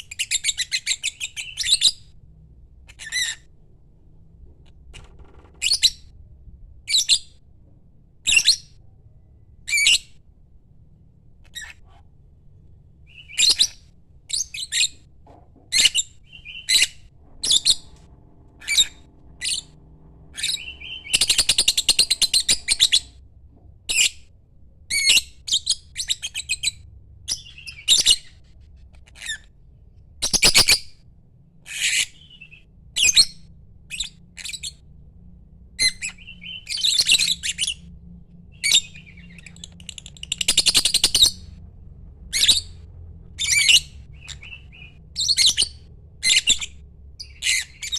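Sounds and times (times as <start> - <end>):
lovebird chirping and squawking: 0.0 - 2.1, 2.9 - 3.5, 5.6 - 6.1, 6.9 - 7.4, 8.3 - 8.8, 9.7 - 10.2, 11.4 - 12.1, 13.1 - 15.1, 15.7 - 23.2, 23.9 - 24.3, 24.9 - 29.5, 30.2 - 30.9, 31.7 - 34.8, 35.8 - 37.9, 38.5 - 41.6, 42.3 - 47.9.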